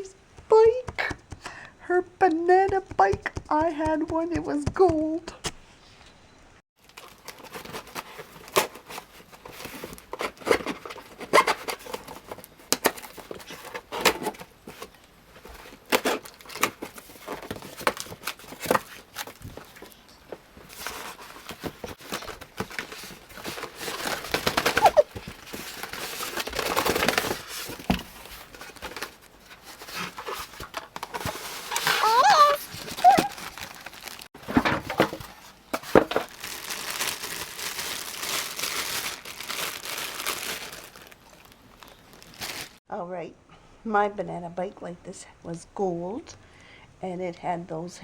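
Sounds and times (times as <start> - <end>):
packaging clicks and crackles: 6.8 - 42.8
packaging rustling and tearing: 6.8 - 42.8.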